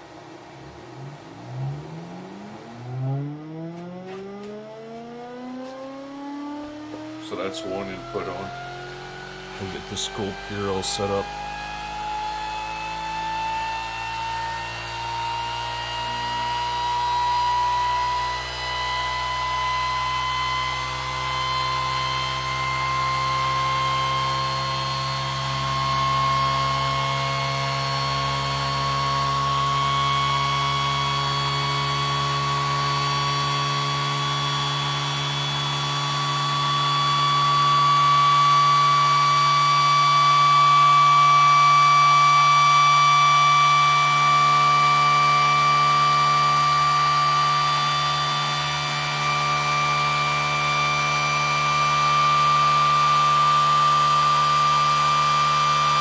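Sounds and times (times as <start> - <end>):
low steady hum: 0.0 - 5.7, 6.6 - 11.5
motor high-pitched whine: 0.0 - 56.0.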